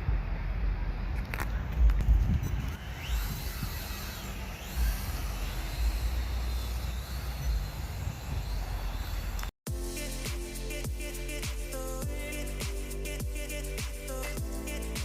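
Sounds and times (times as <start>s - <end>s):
wind buffeting microphone: 0.0s - 9.4s
faint whines rising and falling: 0.0s - 9.5s.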